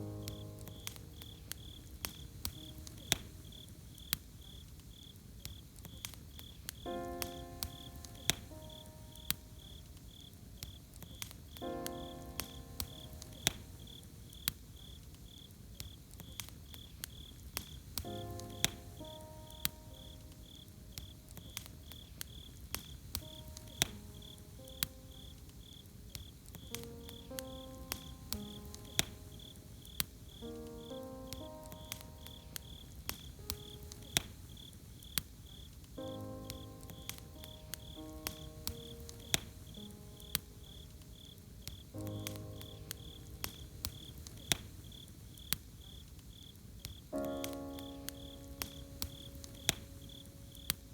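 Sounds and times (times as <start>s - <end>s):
soft musical chords: 0.0s - 4.0s, 23.1s - 34.5s, 36.0s - 44.6s
soft background music: 0.0s - 45.6s, 47.1s - 50.9s
campfire crackling: 0.0s - 50.9s
crickets chirping: 0.0s - 50.9s.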